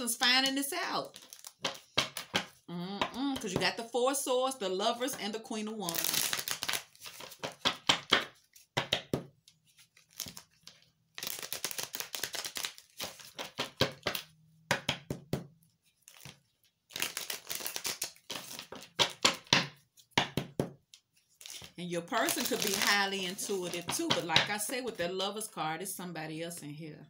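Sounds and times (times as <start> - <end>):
cards flicking and rustling: 0.5 - 2.6, 5.9 - 15.2, 15.8 - 24.6.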